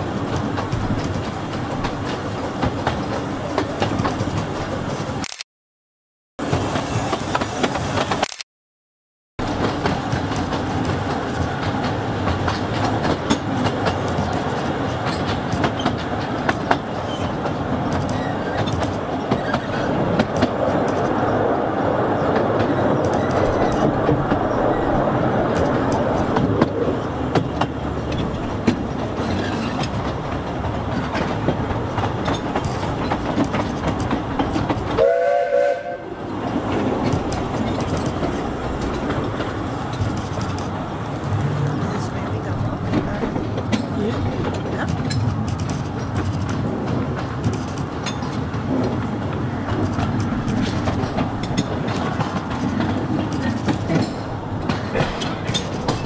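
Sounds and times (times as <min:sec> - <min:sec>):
wheels clacking over rails: 0:00.0 - 0:05.2, 0:09.4 - 0:56.0
train rumbling: 0:00.0 - 0:05.3, 0:06.4 - 0:08.3, 0:09.4 - 0:56.0
train whistle: 0:35.0 - 0:36.2.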